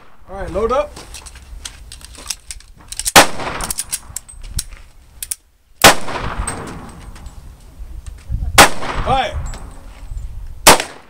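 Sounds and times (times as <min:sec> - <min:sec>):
small metallic clicks: 0:01.2 - 0:05.4
handgun shot with echo: 0:05.8 - 0:06.9, 0:08.6 - 0:09.7, 0:10.6 - 0:11.0.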